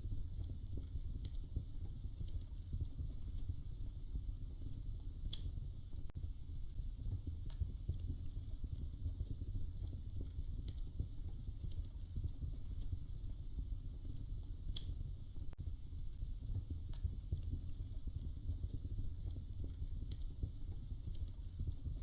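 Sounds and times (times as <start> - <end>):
wood fire crackling: 0.0 - 22.0
sharp pops of fire: 4.5 - 6.1, 13.9 - 15.6.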